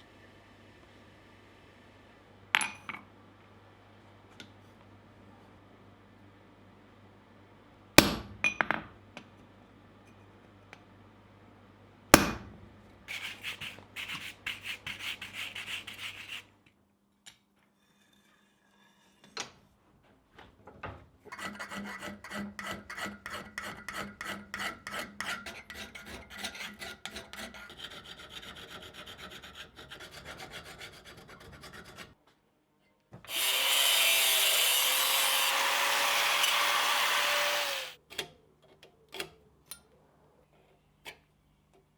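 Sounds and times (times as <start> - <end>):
hand file rasping on steel: 13.1 - 16.5, 21.3 - 32.2.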